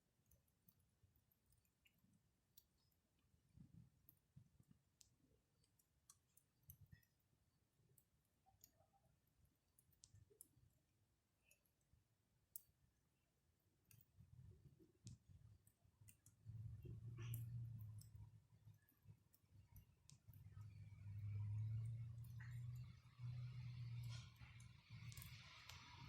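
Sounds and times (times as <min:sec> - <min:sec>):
campfire crackling: 0:17.1 - 0:26.0.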